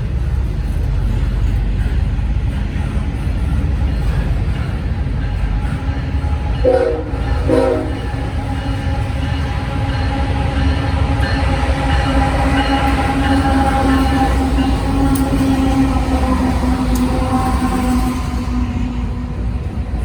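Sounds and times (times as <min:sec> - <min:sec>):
train rumbling past: 0:00.0 - 0:20.0
locomotive horn blasts: 0:06.6 - 0:08.2.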